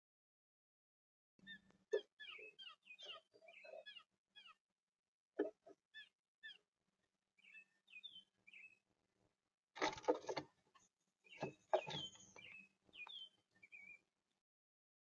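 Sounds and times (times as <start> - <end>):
woodpecker chirps: 1.4 - 4.6, 5.4 - 6.6, 7.4 - 8.8, 11.3 - 14.0
woodpecker harsh rasping calls: 1.5 - 4.6.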